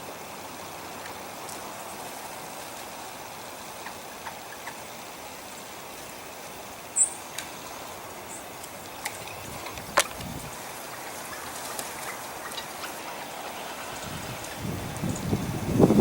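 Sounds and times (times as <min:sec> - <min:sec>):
steady outdoor hiss: 0:00.0 - 0:16.0
high bird chirp: 0:07.0 - 0:07.2
faint ticks: 0:07.0 - 0:07.6.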